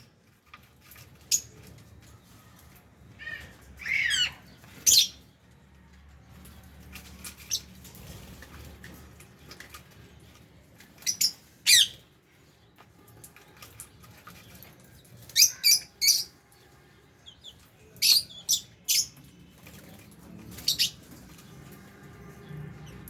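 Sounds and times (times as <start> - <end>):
lovebirds chirping and squawking: 0.0 - 5.6, 6.3 - 23.0.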